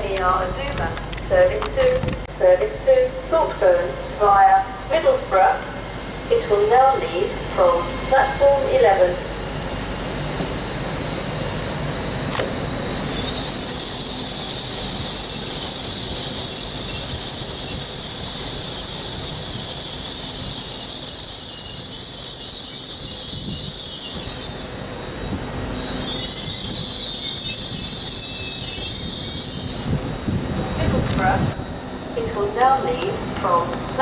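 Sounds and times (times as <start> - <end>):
train wheels squealing on rails: 5.6 - 34.0.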